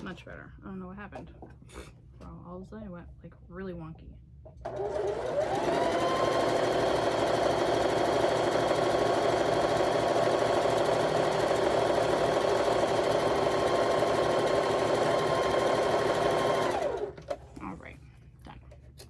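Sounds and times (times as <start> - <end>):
sewing machine running: 4.7 - 17.4.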